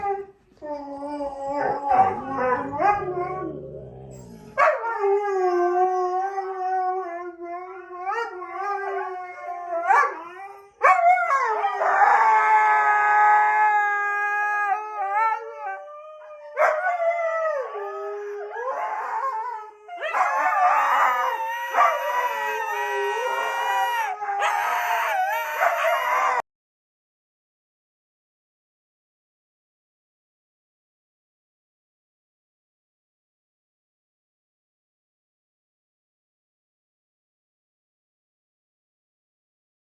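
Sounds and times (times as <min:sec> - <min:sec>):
dogs howling: 0:00.0 - 0:26.4.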